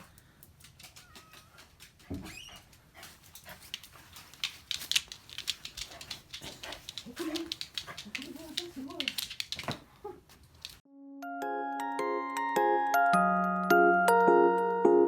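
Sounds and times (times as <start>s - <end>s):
dog claws clicking and tapping: 0.4s - 10.8s.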